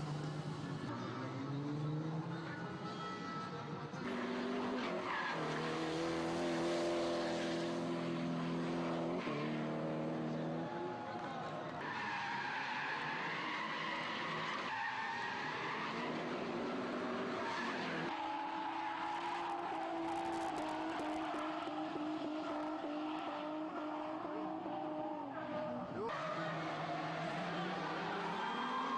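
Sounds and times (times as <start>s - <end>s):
car engine revving: 11.8s - 28.9s.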